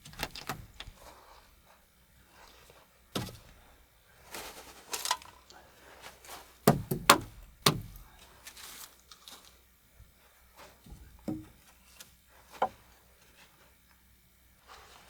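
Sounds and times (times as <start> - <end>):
sharp knocks on wood: 6.7 - 8.1, 10.9 - 11.6.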